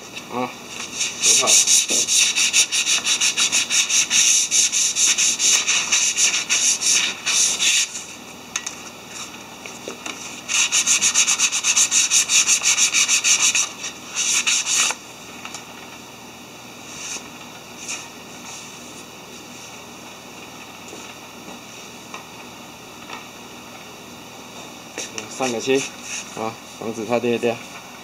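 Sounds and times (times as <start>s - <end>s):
sandpaper rubbing on wooden rod: 1.0s - 8.0s, 10.5s - 15.0s.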